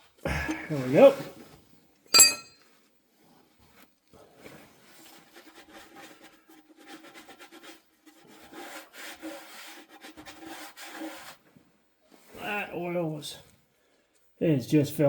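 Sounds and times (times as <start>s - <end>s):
scraping and rubbing: 4.4s - 11.6s.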